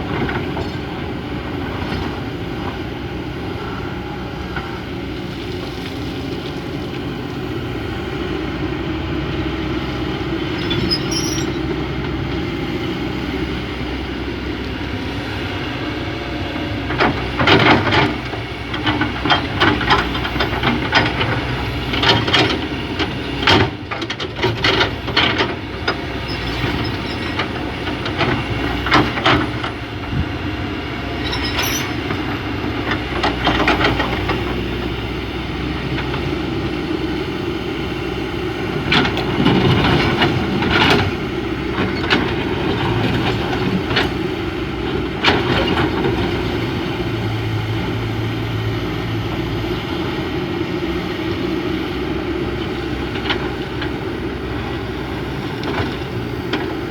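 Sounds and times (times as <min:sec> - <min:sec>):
excavator diesel engine running: 0:00.0 - 0:56.9
bucket clattering and scraping: 0:10.6 - 0:11.7.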